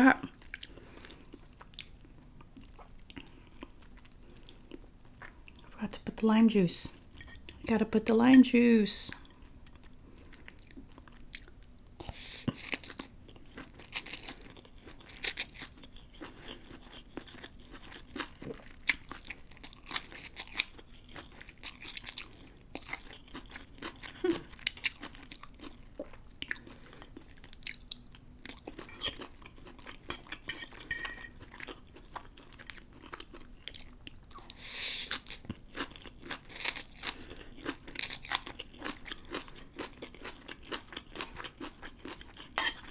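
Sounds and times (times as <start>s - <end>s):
chewing noodles: 12.4s - 42.9s.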